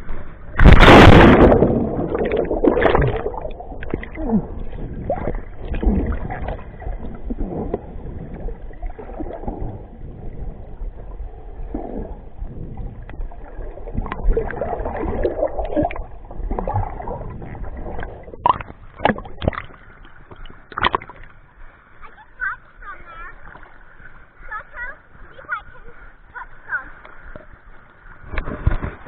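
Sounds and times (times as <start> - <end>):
steady low rumble: 0.0 - 19.0
water sloshing and gurgling: 0.0 - 29.0.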